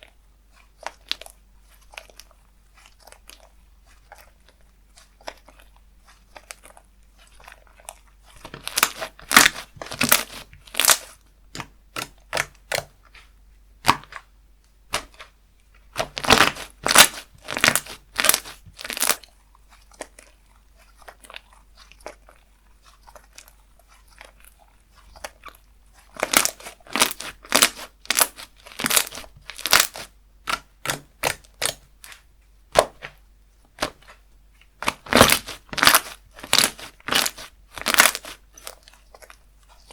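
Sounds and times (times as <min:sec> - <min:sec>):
slime crackling pops: 0:34.8 - 0:38.7.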